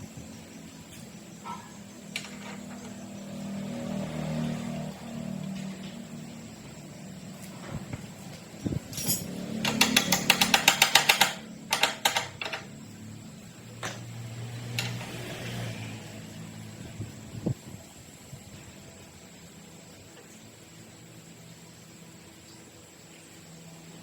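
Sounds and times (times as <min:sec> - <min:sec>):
rapid metallic clicks: 0:08.9 - 0:12.8.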